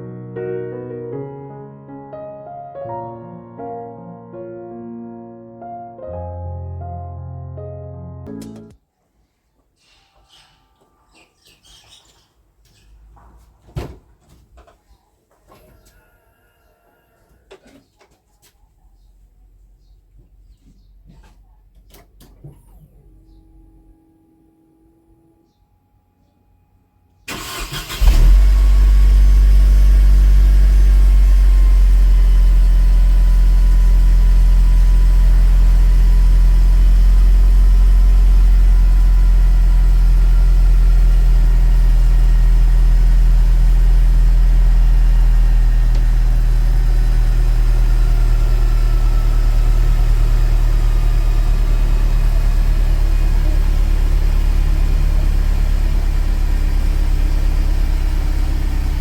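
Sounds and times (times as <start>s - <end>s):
car engine idling: 27.3s - 59.0s.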